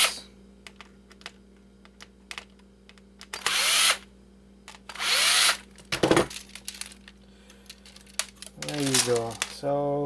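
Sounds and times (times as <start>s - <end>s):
rattle of handled parts: 0.6s - 3.5s, 5.6s - 9.7s
power screwdriver spinning: 3.3s - 4.0s, 4.9s - 5.6s.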